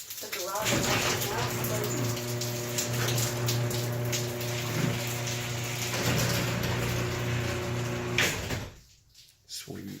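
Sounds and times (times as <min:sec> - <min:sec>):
garage door opener humming: 0:00.7 - 0:08.8
garage door clunk: 0:04.6 - 0:08.8.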